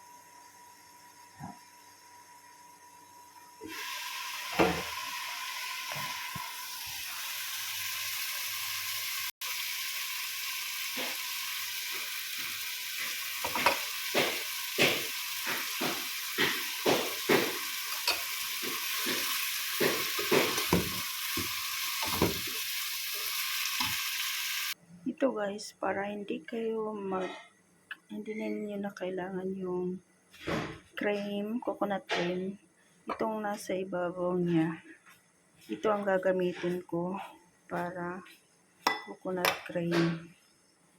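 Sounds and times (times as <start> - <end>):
food sizzling in a pan: 0.0 - 24.8
utensil knocking against pan: 13.4 - 22.5.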